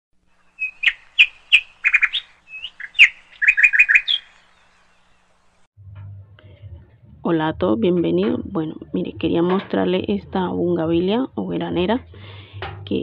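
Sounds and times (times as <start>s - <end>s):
bird chirping: 0.2s - 5.7s.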